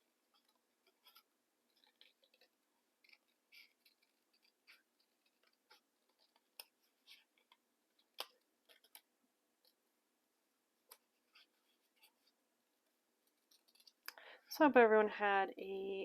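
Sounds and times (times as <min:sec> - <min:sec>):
paper rustling: 0:00.3 - 0:09.1.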